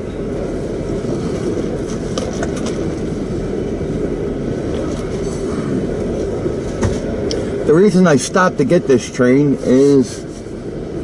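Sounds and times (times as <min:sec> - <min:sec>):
freight train cars rumbling: 0:00.0 - 0:11.0.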